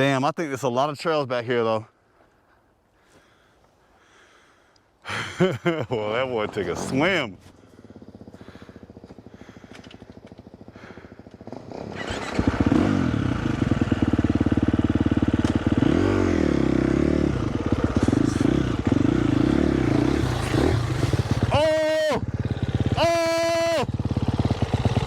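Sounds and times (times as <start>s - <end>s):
dirt bike engine running: 5.1s - 25.0s.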